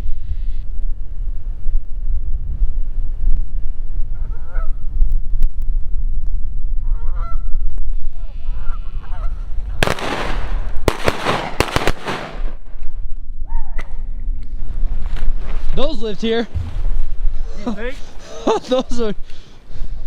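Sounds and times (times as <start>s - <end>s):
wind rumble on microphone: 0.0s - 17.6s
geese honking: 6.9s - 7.4s, 8.4s - 9.5s
shotgun blasts: 9.8s - 12.6s.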